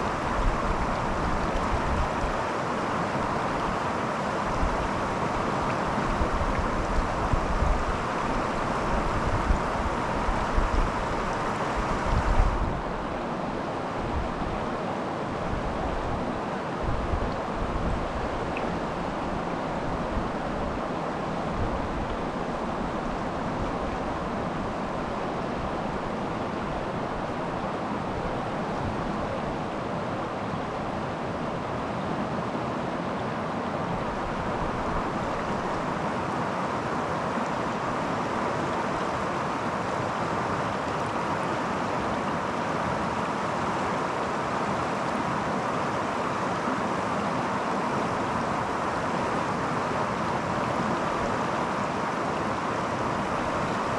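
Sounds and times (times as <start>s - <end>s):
creek water rushing: 0.0s - 53.9s
wind buffeting microphone: 6.1s - 8.0s, 11.8s - 13.0s.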